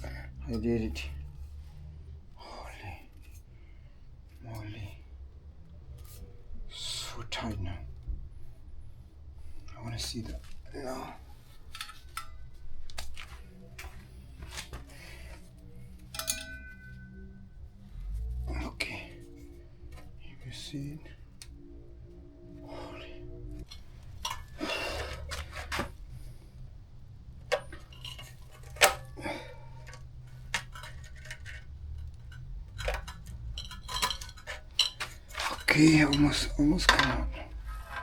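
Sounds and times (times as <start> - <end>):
low steady hum: 0.0 - 38.0
metal tools clinking: 9.5 - 38.0.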